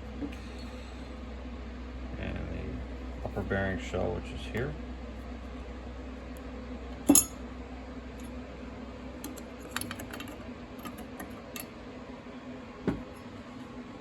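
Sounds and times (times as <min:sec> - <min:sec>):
steady low hum: 0:00.0 - 0:14.0
metal parts clinking: 0:07.1 - 0:07.4, 0:09.2 - 0:11.7
sharp metal clack: 0:07.1 - 0:07.4.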